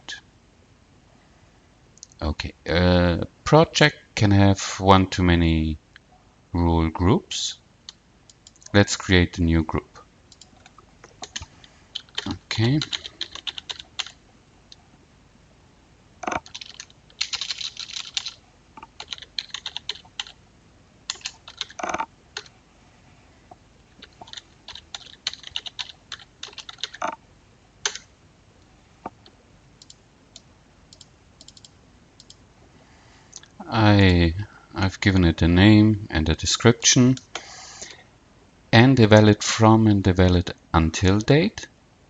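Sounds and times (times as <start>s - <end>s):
typing on computer keyboard: 10.3s - 14.2s, 16.2s - 20.4s, 21.1s - 22.5s, 24.0s - 27.2s, 27.8s - 28.1s, 30.9s - 32.4s.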